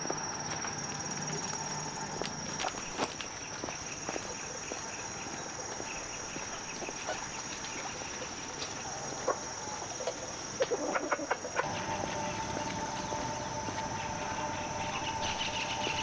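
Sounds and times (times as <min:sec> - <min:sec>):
high-pitched insect drone: 0:11.6 - 0:16.0.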